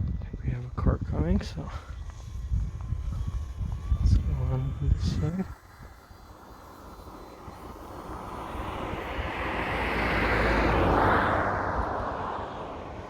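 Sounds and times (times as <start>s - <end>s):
car driving past: 7.8s - 13.0s.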